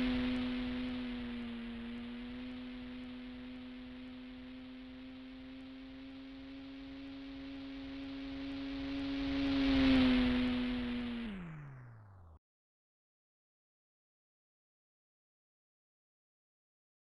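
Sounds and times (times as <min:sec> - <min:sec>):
model plane motor droning: 0:00.0 - 0:12.4.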